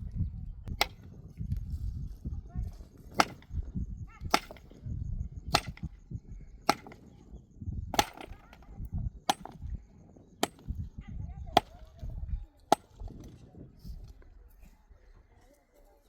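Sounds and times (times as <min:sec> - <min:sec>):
wood chopping blows: 0:03.1 - 0:03.6, 0:04.2 - 0:04.7, 0:05.5 - 0:05.9, 0:06.7 - 0:07.1, 0:08.0 - 0:08.7, 0:09.3 - 0:09.7.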